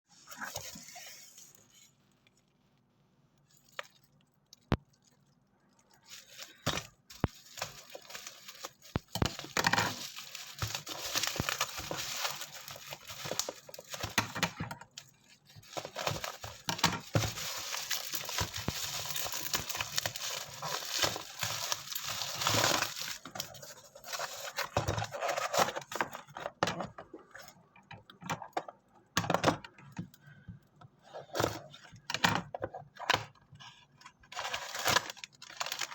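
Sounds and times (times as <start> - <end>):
packaging rustling and tearing: 5.9 - 26.6, 34.1 - 35.9.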